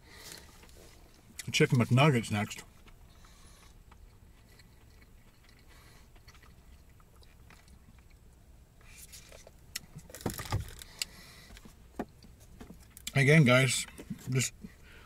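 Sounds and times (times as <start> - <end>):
person chewing food: 2.6 - 13.1.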